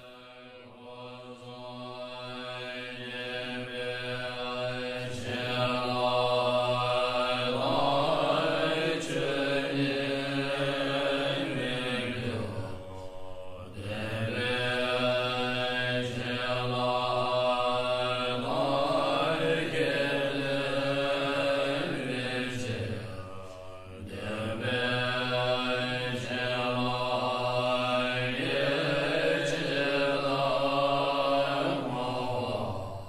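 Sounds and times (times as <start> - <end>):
person chanting: 0.0 - 33.0.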